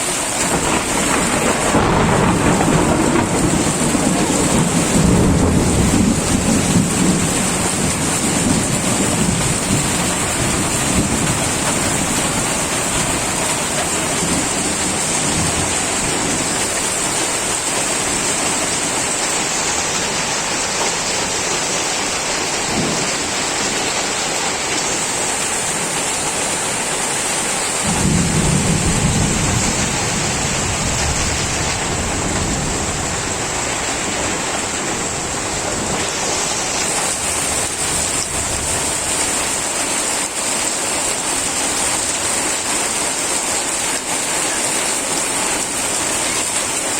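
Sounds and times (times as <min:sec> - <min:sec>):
heavy rain pouring: 0:00.0 - 0:46.9
low rolling thunder: 0:00.3 - 0:19.1, 0:22.6 - 0:23.6, 0:25.1 - 0:39.7.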